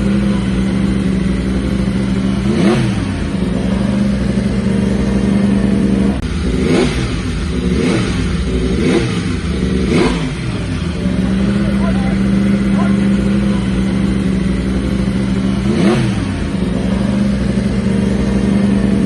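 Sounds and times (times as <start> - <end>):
racing motorcycles passing: 0.0 - 19.0
steady engine note: 0.0 - 19.0.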